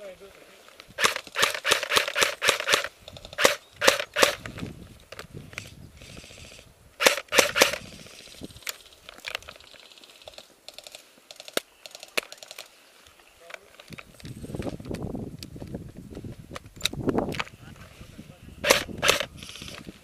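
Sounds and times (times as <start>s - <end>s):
airsoft guns firing: 1.0s - 4.4s, 7.0s - 7.8s, 18.6s - 19.3s.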